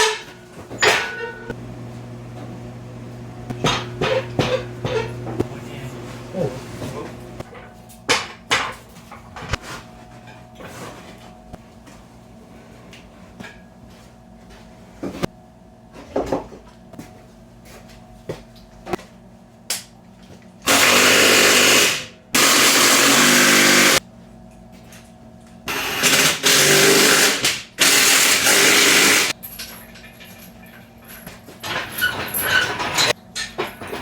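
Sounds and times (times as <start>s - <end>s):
power tool bursts: 20.7s - 24.0s, 25.7s - 29.3s.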